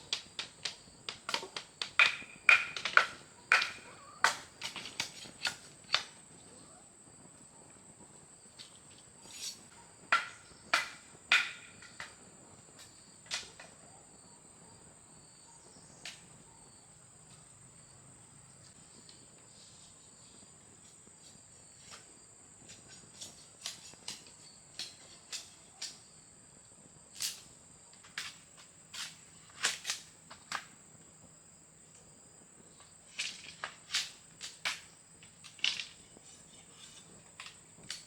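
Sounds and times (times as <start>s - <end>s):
handling knocks and clicks: 0.0s - 6.1s, 32.8s - 38.0s
crickets chirping: 0.0s - 38.0s.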